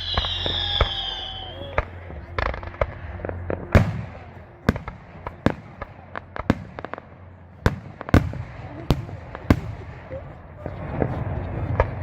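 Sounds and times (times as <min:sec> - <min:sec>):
fireworks bangs with crackle: 0:00.0 - 0:12.0.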